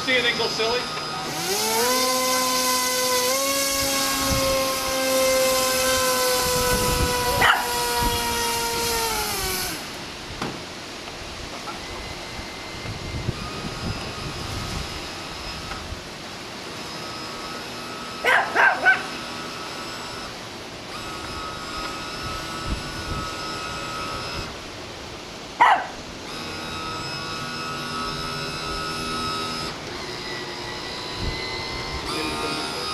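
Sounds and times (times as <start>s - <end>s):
toy boat electric motor whine: 0.0s - 10.2s, 11.3s - 24.9s, 25.6s - 32.9s
small dog barking: 7.4s - 7.7s, 18.2s - 19.1s, 25.6s - 26.0s.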